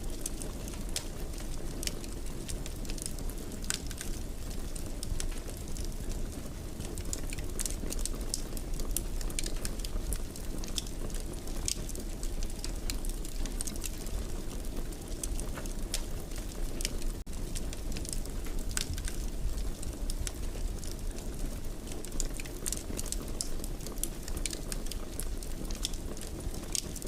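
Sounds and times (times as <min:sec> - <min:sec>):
fireplace fire crackling: 0:00.0 - 0:27.0.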